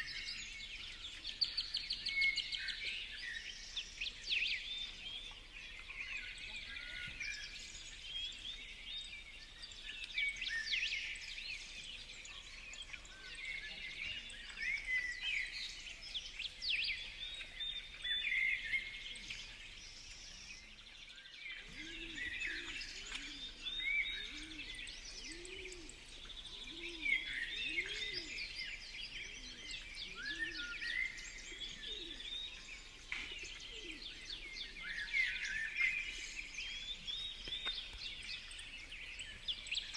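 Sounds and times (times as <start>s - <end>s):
songbirds chirping: 0.0s - 39.9s
pigeon cooing: 26.7s - 28.4s.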